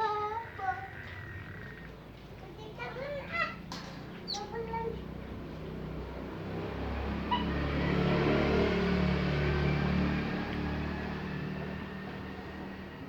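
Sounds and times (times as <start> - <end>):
motor vehicle engine hum: 4.0 - 13.0.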